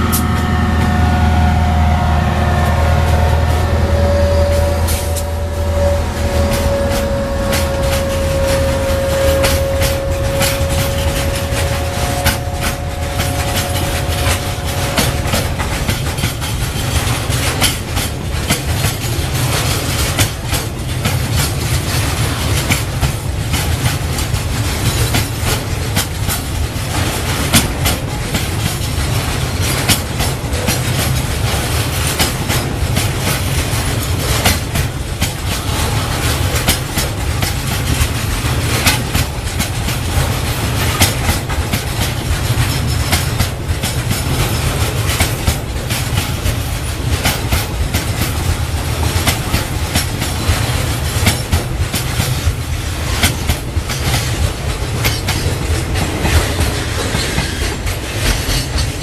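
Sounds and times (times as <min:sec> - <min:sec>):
thin squealing tone: 0:00.0 - 0:15.7
freight train rumbling: 0:00.0 - 0:59.0
wheels clanking over rail joints: 0:02.4 - 0:59.0.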